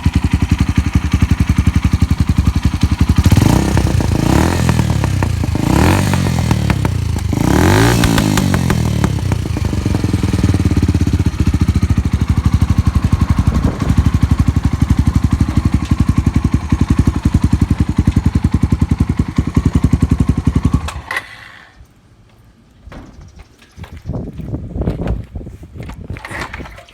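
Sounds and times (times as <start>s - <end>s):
motorcycle engine revving and idling: 0.0s - 21.1s.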